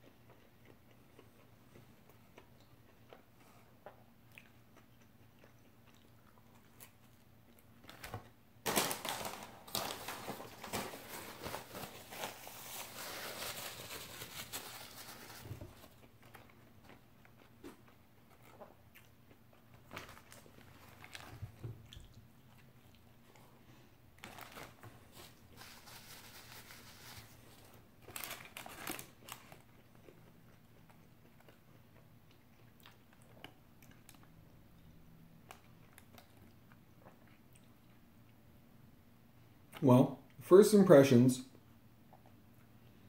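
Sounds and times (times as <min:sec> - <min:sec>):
person chewing crunchy sandwich: 0:00.0 - 0:08.0, 0:10.8 - 0:38.4
paper wrapper crinkling: 0:07.9 - 0:16.1, 0:19.9 - 0:21.4, 0:24.2 - 0:29.7.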